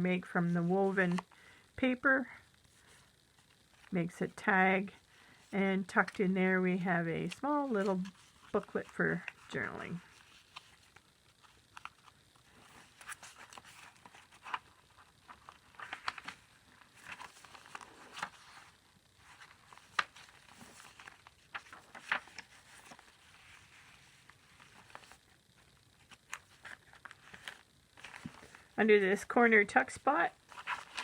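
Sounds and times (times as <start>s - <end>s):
paper rustling and crinkling: 7.2s - 31.0s.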